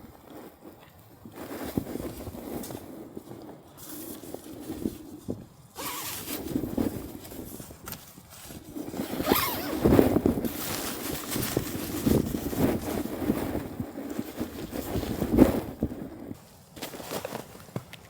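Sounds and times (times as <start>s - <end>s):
zipper being pulled: 5.8s - 7.0s, 8.8s - 13.0s.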